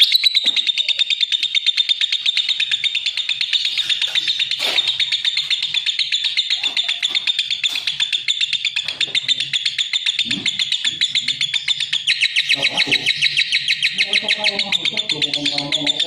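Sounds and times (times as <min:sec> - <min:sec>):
lovebird chirping: 0:00.0 - 0:16.0.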